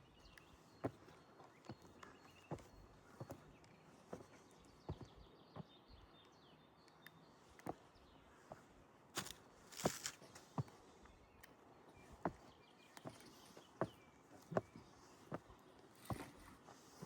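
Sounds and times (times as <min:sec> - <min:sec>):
footsteps walking: 0:09.2 - 0:10.4
footstep scuff: 0:09.2 - 0:10.8.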